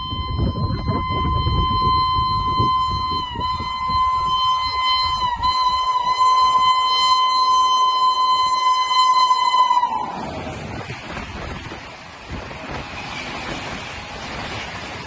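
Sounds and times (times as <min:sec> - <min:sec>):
train horn blast: 0:00.0 - 0:11.4.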